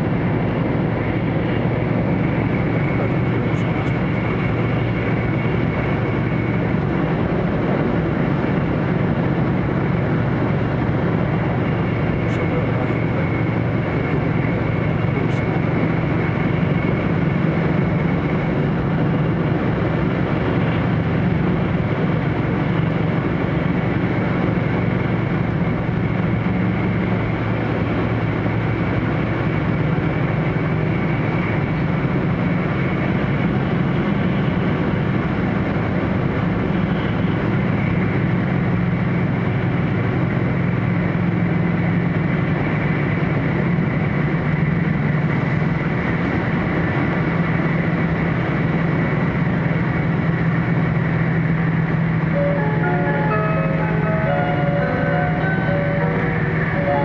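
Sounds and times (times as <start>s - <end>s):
train cabin low hum: 0.0s - 57.0s
fainter higher hum: 52.2s - 57.0s.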